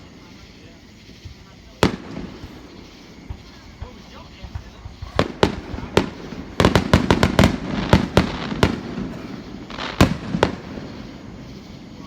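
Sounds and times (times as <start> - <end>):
fireworks banging: 0.0 - 12.0.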